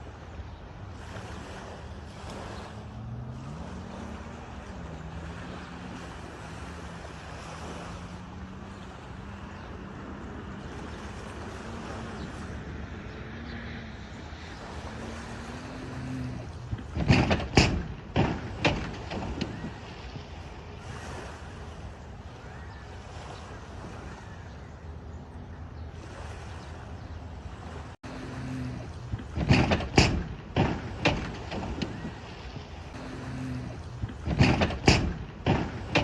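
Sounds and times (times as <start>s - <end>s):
engine running: 0.0s - 36.0s
loud sudden bangs: 29.2s - 32.3s, 34.0s - 36.0s.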